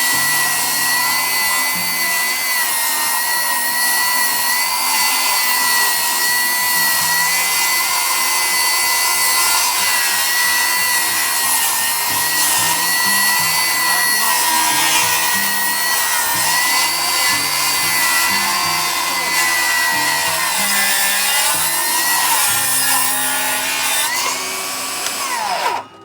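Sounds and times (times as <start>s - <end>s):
table saw ripping wood: 0.0s - 26.0s.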